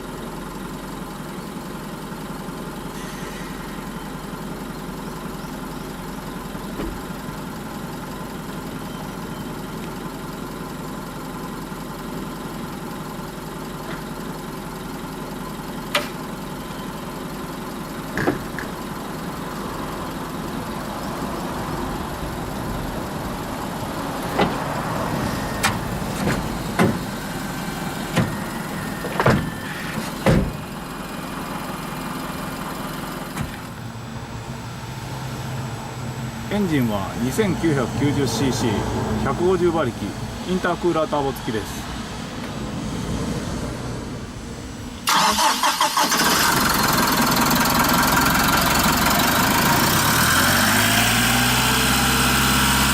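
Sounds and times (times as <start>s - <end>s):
motor hum: 21.8s - 36.5s.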